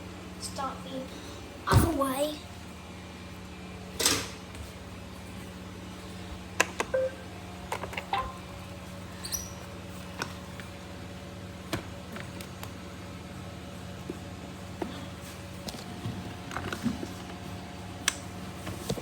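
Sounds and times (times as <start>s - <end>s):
steady low hum: 0.0s - 19.0s
short electronic beeps: 6.9s - 7.3s.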